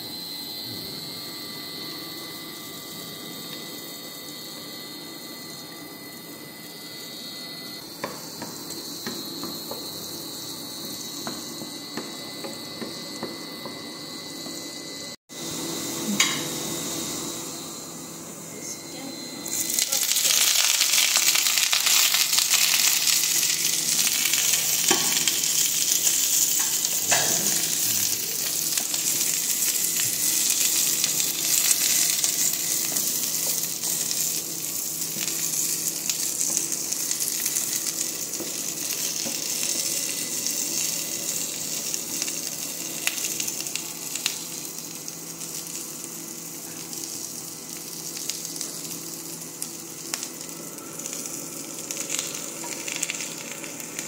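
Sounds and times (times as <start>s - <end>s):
vegetables sizzling in oil: 19.4s - 54.0s.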